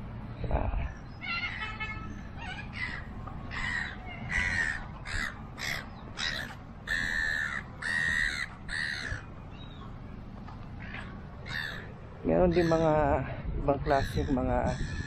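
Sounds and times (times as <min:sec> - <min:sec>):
birds cawing: 0:00.9 - 0:09.8, 0:10.7 - 0:15.0.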